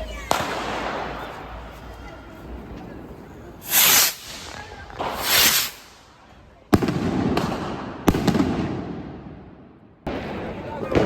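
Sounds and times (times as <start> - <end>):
rocket whooshing up: 3.6 - 6.2.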